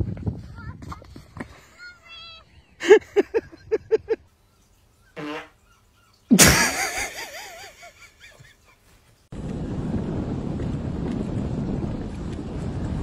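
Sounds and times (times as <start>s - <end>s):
wind noise: 0.0s - 1.7s, 9.3s - 13.0s.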